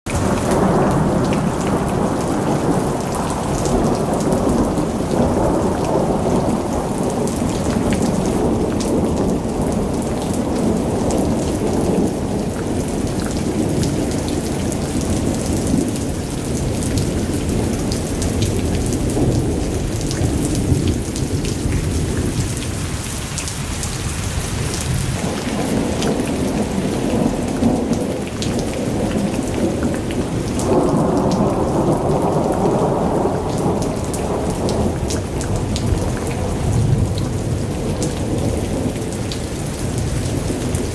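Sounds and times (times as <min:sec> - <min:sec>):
heavy rain falling: 0:00.1 - 0:40.9
rolling thunder rumbling: 0:00.1 - 0:40.9.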